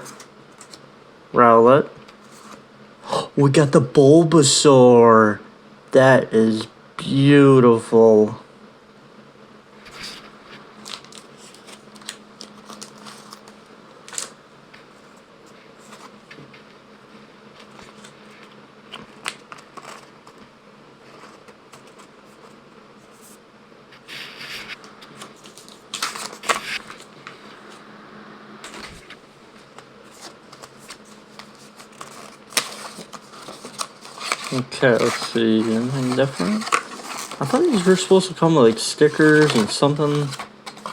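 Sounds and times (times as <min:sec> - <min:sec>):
packaging rustling: 0:00.0 - 0:00.8, 0:09.9 - 0:15.1, 0:15.7 - 0:16.6, 0:17.5 - 0:23.4, 0:24.0 - 0:27.8, 0:28.6 - 0:40.9
faint steady hum: 0:00.0 - 0:40.9.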